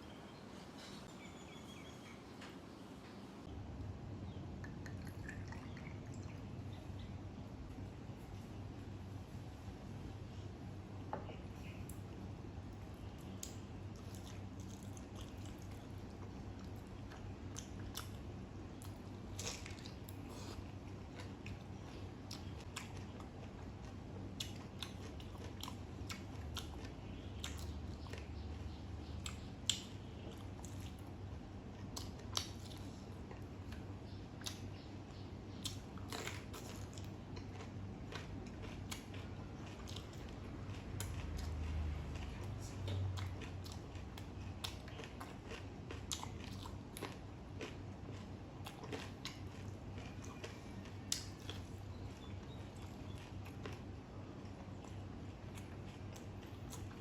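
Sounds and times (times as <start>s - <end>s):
person chewing crunchy food: 12.9s - 34.6s, 35.6s - 57.0s.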